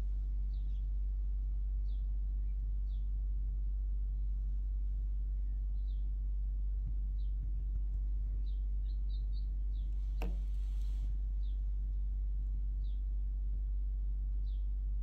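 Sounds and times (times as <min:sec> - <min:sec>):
small birds chirping: 0:00.0 - 0:15.0
steady low rumble: 0:00.0 - 0:15.0
sharp knock: 0:10.2 - 0:10.5.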